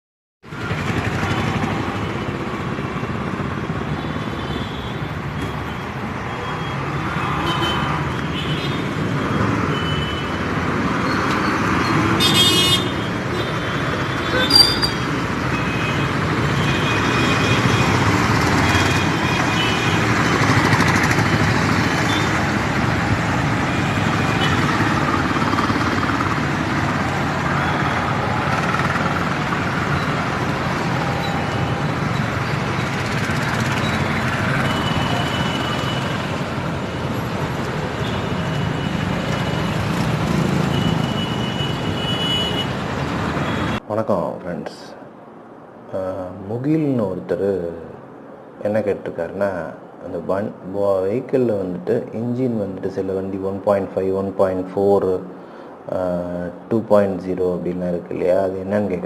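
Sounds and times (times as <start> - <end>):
road traffic noise: 0.4 - 59.0
car horn: 7.4 - 8.8, 12.2 - 18.0, 40.7 - 42.8.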